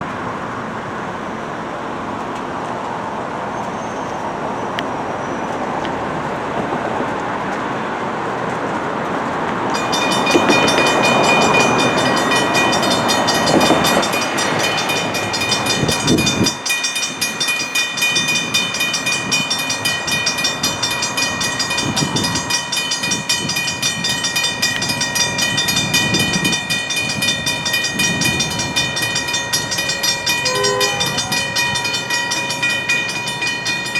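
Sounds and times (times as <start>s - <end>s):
rumble of passing traffic: 0.0s - 33.9s
railroad crossing bell ringing: 9.7s - 33.9s.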